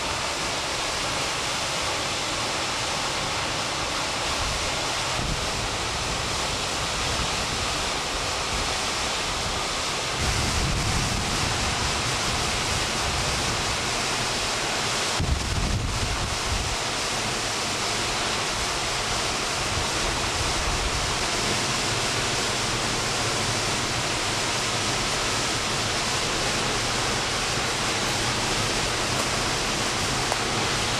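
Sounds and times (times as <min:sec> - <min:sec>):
waterfall roaring: 0:00.0 - 0:30.9
wind buffeting microphone: 0:10.2 - 0:13.8, 0:15.2 - 0:16.8.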